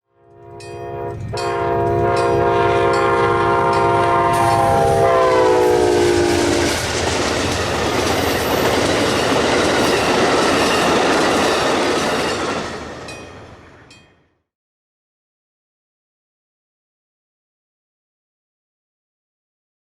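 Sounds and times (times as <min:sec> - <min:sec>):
locomotive horn blowing: 0:00.0 - 0:06.9
train passing: 0:00.2 - 0:14.3.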